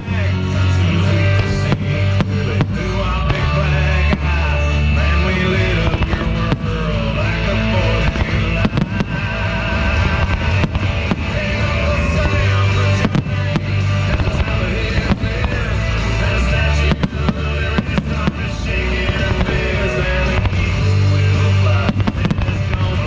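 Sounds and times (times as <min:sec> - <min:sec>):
fireworks bangs: 0:00.0 - 0:23.0
loud rock music: 0:00.0 - 0:23.0.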